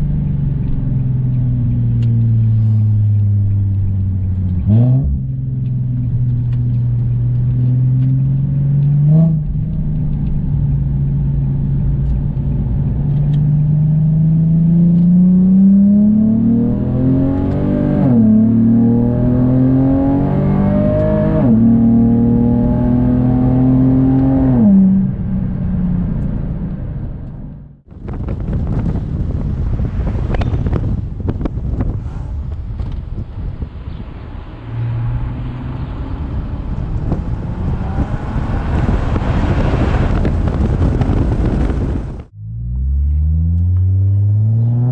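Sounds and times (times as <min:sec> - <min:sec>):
car engine accelerating: 0:00.0 - 0:44.9
wind noise on microphone: 0:27.8 - 0:42.4.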